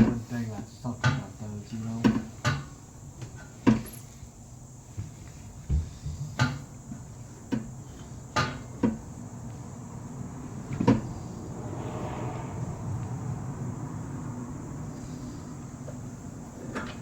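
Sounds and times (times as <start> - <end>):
knocks and clunks under car: 0.0 - 0.4, 4.8 - 11.4, 15.6 - 17.0
steady rushing noise: 9.2 - 16.6.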